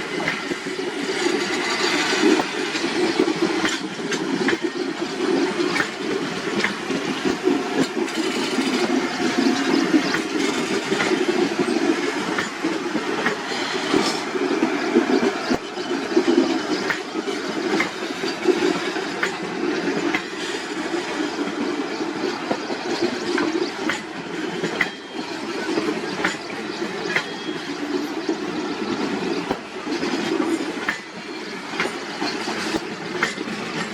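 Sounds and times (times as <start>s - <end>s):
train rumbling on track: 0.0s - 33.9s
wheels clicking over rail joints: 0.0s - 33.9s.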